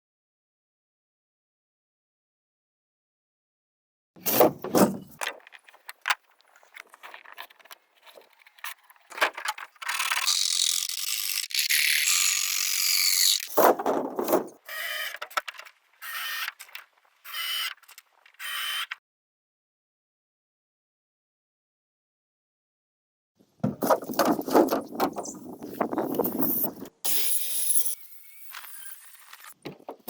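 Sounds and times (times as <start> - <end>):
tool rasping on bamboo: 9.9 - 13.6.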